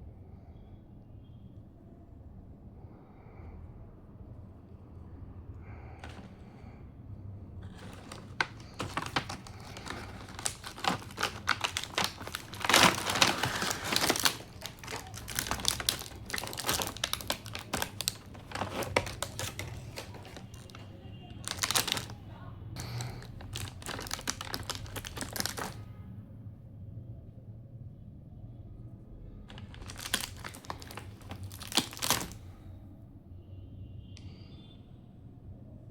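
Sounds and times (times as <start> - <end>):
toy packaging crinkling: 6.0 - 6.7, 7.6 - 22.2, 22.8 - 25.8, 29.5 - 32.6.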